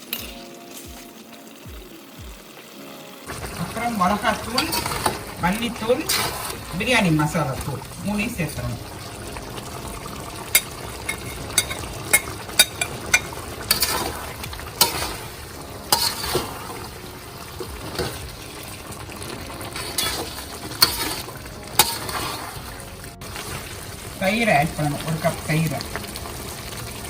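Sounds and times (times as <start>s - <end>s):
food sizzling in a pot: 0.0s - 27.0s
utensil scraping a pot: 4.5s - 7.0s, 10.5s - 23.6s.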